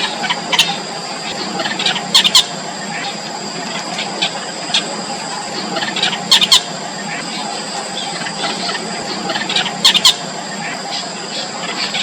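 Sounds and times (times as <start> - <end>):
steady background hiss: 0.0 - 12.0
bird chicks squeaky calls: 0.2 - 3.1, 5.8 - 6.7, 8.0 - 10.3.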